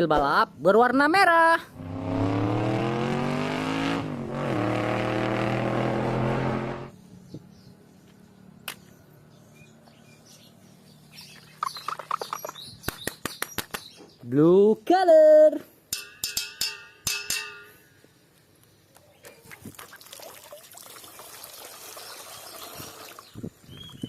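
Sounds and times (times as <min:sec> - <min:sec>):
race car engine revving: 0:01.8 - 0:06.9.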